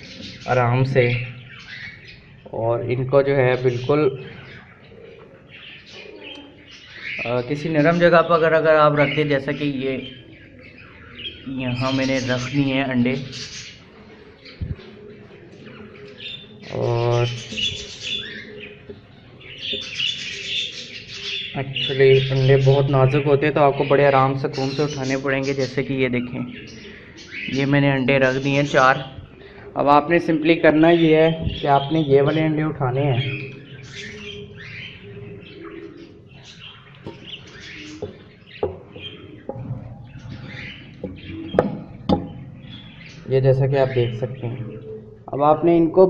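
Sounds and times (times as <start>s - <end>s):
budgerigars chattering: 0.0s - 46.0s
sharp knocks: 38.0s - 39.9s, 41.0s - 42.4s.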